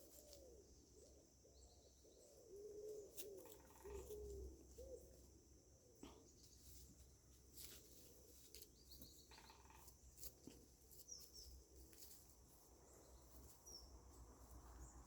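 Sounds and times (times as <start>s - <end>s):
faint bird calls: 0.0s - 7.0s, 7.7s - 12.2s.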